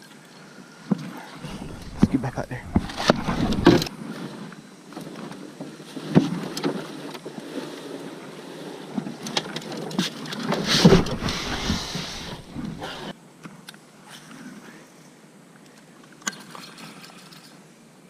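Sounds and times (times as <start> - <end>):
wind hiss: 1.3 - 4.0, 10.5 - 13.1.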